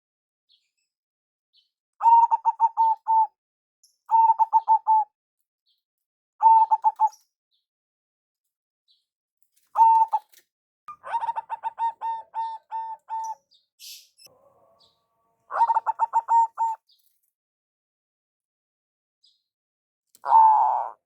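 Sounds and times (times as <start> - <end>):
dove cooing: 2.0 - 3.3, 4.1 - 5.0, 6.4 - 7.2, 9.8 - 10.3, 10.9 - 13.4, 14.2 - 16.8, 20.2 - 21.0.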